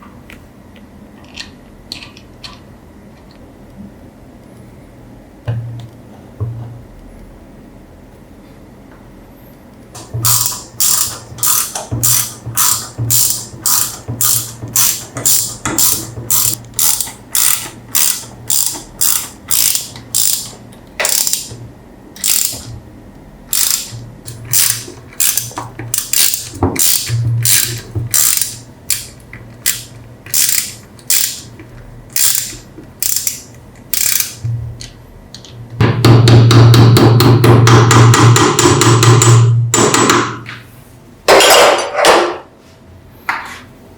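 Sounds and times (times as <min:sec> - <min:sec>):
ratchet clicking: 0:10.2 - 0:21.6, 0:22.2 - 0:22.7, 0:23.5 - 0:31.5, 0:32.1 - 0:34.5.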